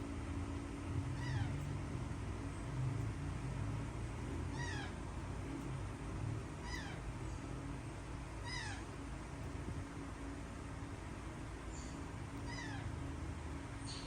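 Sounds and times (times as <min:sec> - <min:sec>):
steady low hum: 0:00.0 - 0:14.0
baby birds cheeping: 0:00.9 - 0:02.8, 0:03.9 - 0:05.3, 0:06.4 - 0:09.0, 0:11.6 - 0:14.0.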